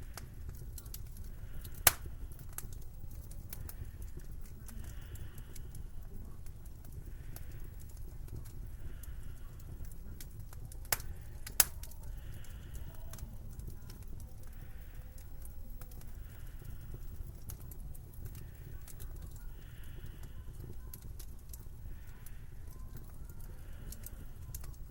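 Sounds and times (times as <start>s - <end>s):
sharp cracks: 1.6s - 2.7s, 10.9s - 11.9s.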